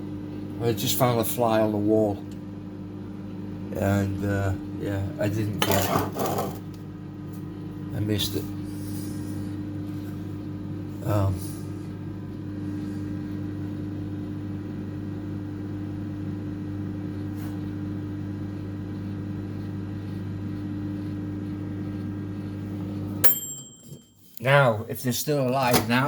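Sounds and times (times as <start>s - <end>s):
microwave oven humming: 0.0s - 26.0s
microwave click: 25.5s - 26.0s.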